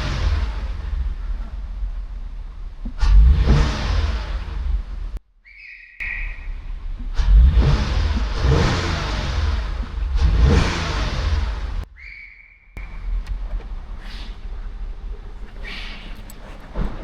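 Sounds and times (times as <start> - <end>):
car engine revving: 0.0 - 5.2, 6.0 - 11.9.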